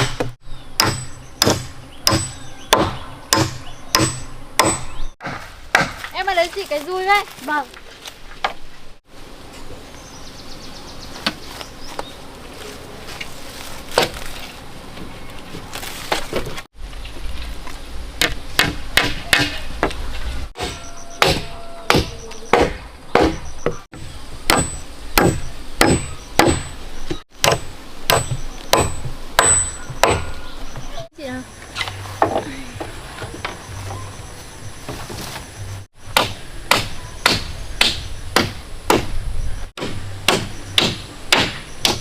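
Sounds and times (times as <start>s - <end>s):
hammer blows on wood: 0.0s - 6.0s, 20.6s - 26.8s, 27.4s - 30.9s
faint insect chirping: 29.7s - 39.7s.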